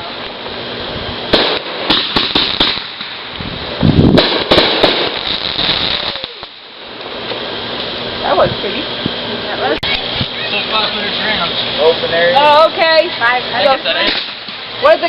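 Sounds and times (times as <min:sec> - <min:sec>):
fireworks bangs and cracks: 0:00.0 - 0:09.2, 0:13.6 - 0:15.0.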